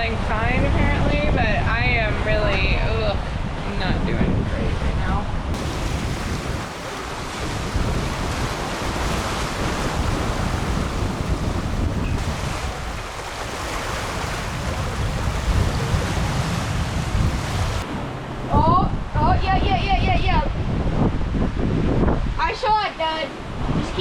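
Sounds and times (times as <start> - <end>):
choppy sea waves rushing: 0.0 - 24.0
wind buffeting microphone: 0.0 - 24.0.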